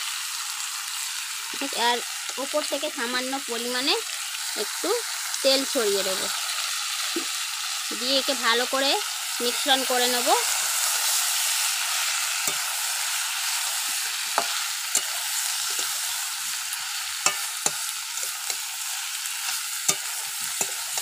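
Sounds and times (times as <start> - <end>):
food sizzling in oil: 0.0 - 21.0
spatula scraping and knocking pan: 13.8 - 16.6, 17.2 - 18.7, 19.4 - 21.0.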